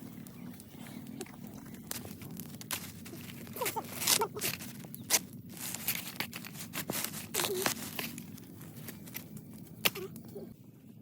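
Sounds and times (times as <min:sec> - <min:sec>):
sharp tearing and crackling: 0:01.5 - 0:10.3.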